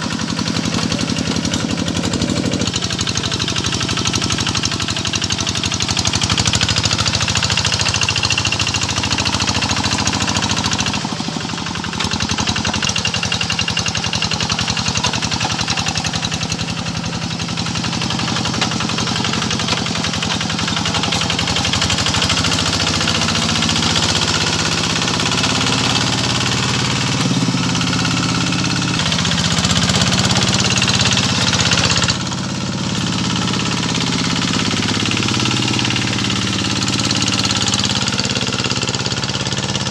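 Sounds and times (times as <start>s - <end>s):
tractor engine chugging: 0.0s - 39.9s.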